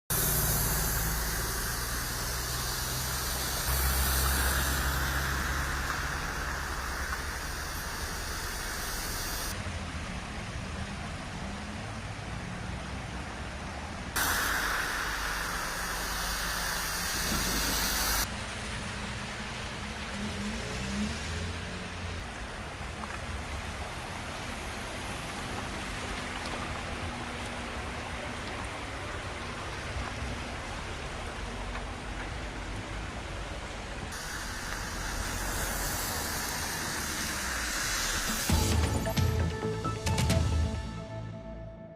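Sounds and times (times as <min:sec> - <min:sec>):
water spray hiss: 0:00.1 - 0:09.6, 0:14.2 - 0:18.5, 0:34.1 - 0:39.8
low engine noise: 0:00.1 - 0:20.0, 0:21.8 - 0:41.2.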